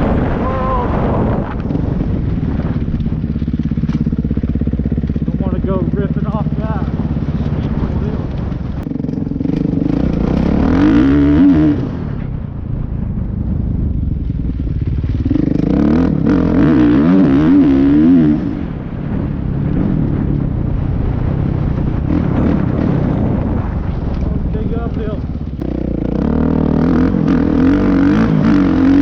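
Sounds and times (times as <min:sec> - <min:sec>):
dirt bike engine revving: 0:00.0 - 0:12.4, 0:14.2 - 0:20.5, 0:21.7 - 0:23.8, 0:24.5 - 0:29.0.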